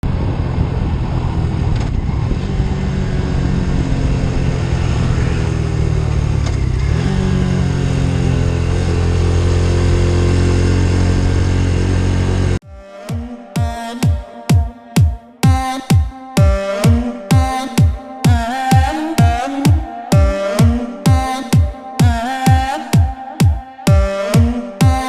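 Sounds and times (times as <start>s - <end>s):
motorcycle engine running: 0.1s - 12.6s.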